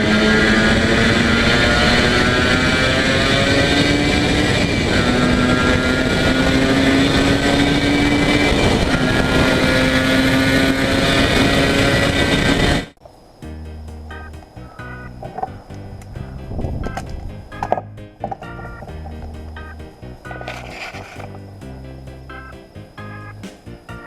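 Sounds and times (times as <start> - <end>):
two-stroke motorcycle engine accelerating: 0.0 - 13.0.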